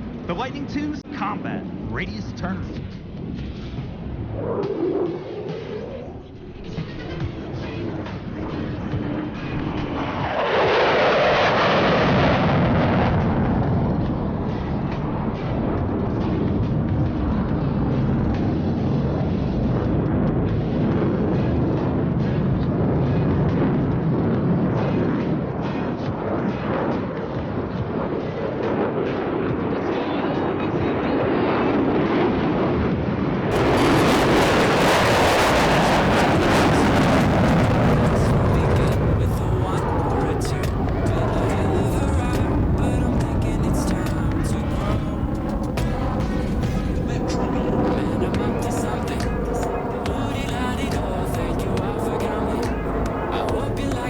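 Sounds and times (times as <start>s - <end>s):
jet engine roar in afterburner: 0.0s - 54.0s.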